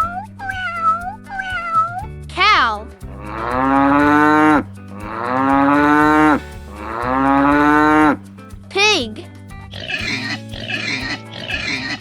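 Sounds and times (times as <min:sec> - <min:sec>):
cow mooing: 0:03.2 - 0:08.2.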